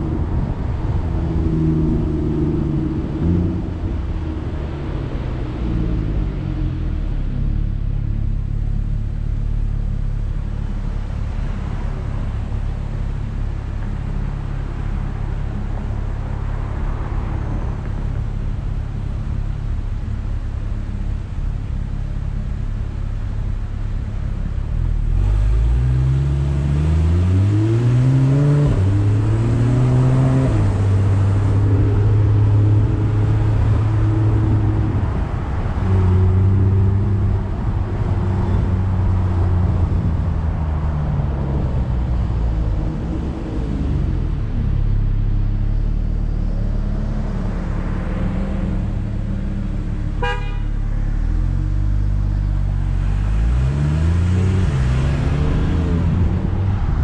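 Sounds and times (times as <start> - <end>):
car engine idling: 0.0 - 27.5, 30.6 - 53.7
car accelerating through gears: 24.8 - 44.5, 51.1 - 57.0.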